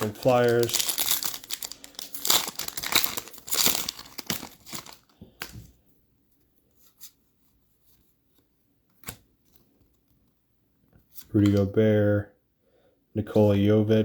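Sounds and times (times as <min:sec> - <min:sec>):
wrapper crinkling and tearing: 0:00.0 - 0:05.5
cards clicking: 0:11.2 - 0:11.7.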